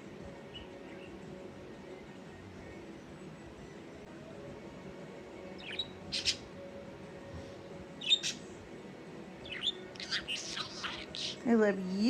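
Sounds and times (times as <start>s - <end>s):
budgerigar chirping: 5.6s - 6.5s, 8.0s - 8.4s, 9.4s - 11.4s.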